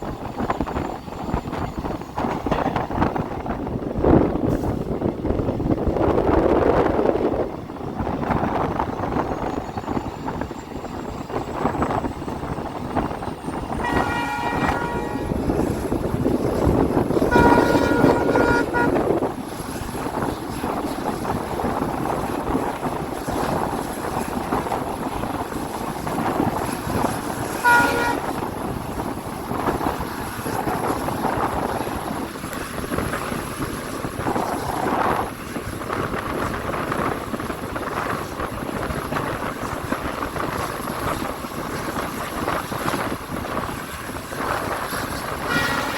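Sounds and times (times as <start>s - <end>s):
train running: 0.0s - 45.9s
locomotive horn blasts: 13.8s - 15.8s, 17.1s - 19.2s, 27.5s - 28.5s, 45.4s - 45.9s.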